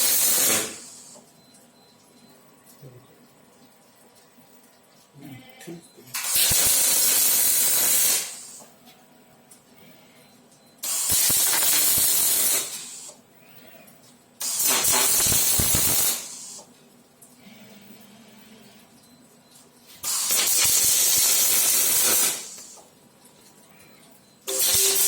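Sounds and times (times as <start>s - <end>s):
arc welding hiss and crackle: 0.0s - 1.2s, 6.1s - 8.7s, 10.8s - 13.2s, 14.4s - 16.7s, 20.0s - 22.9s, 24.5s - 25.0s.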